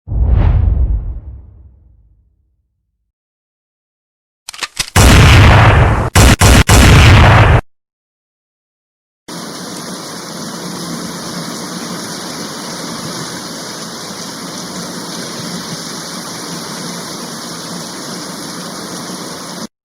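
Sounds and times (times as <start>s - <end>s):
rushing water: 9.3s - 19.7s.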